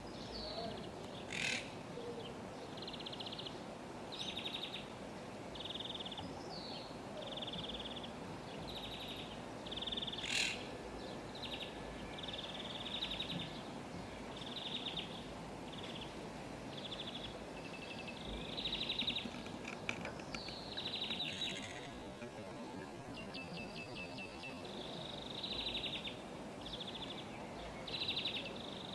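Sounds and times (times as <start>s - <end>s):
steady background noise: 0.0s - 28.9s
parrots calling: 1.3s - 1.7s, 10.2s - 10.6s, 21.2s - 22.0s.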